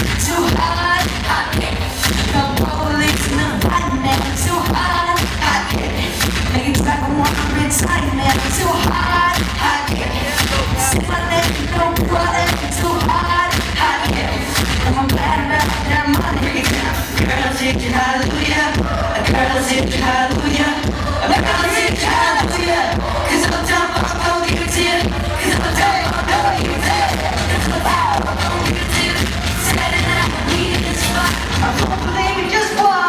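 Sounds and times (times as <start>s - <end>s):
live pop-funk band: 0.0s - 33.0s
children singing: 7.3s - 33.0s.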